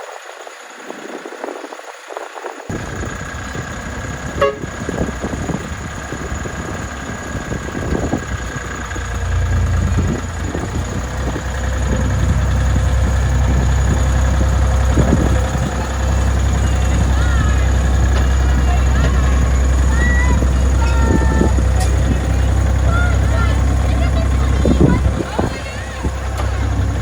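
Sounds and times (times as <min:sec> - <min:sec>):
miniature locomotive rumbling: 0:00.0 - 0:27.0
locomotive toot: 0:03.9 - 0:05.4, 0:08.0 - 0:27.0.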